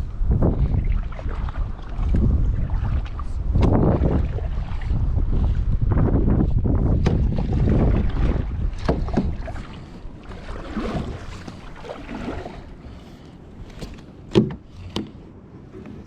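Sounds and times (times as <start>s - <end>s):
wind rumbling on microphone: 0.0s - 16.0s
water splashing: 0.3s - 5.7s, 7.0s - 14.5s
knocks against kayak hull: 7.0s - 7.7s, 8.7s - 9.7s, 13.8s - 15.2s.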